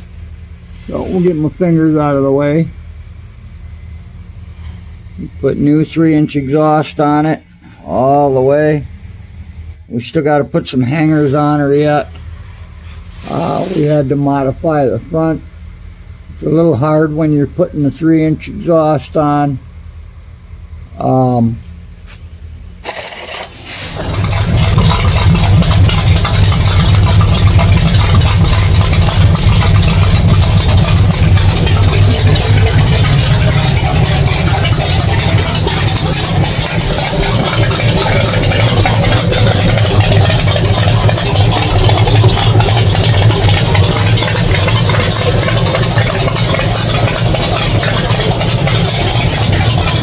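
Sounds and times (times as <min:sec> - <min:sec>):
car engine starting and idling: 0:22.8 - 0:50.0.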